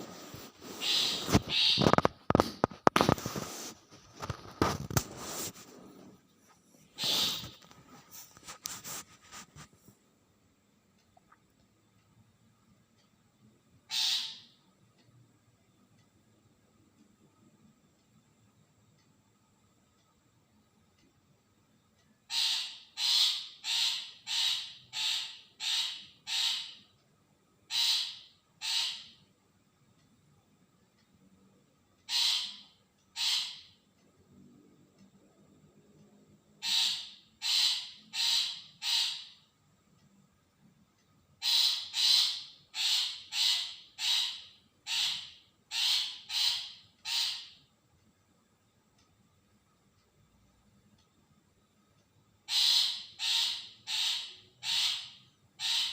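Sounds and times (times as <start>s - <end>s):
shrike giving harsh scratchy calls: 0.6s - 2.1s, 7.0s - 7.6s, 13.9s - 14.4s
bird harsh rasping calls: 0.8s - 2.1s, 7.0s - 7.6s, 13.9s - 14.5s, 22.3s - 26.8s, 27.7s - 29.2s, 32.1s - 33.7s, 36.6s - 39.4s, 41.4s - 47.6s, 52.5s - 55.9s.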